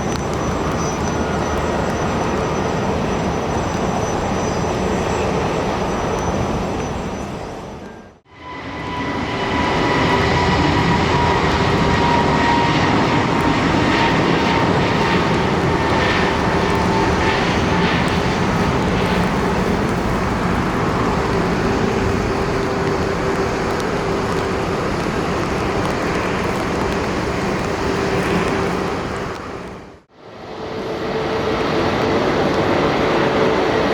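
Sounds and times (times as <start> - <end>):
jet engine whine: 0.0 - 33.9
jet engines roaring: 0.0 - 33.9.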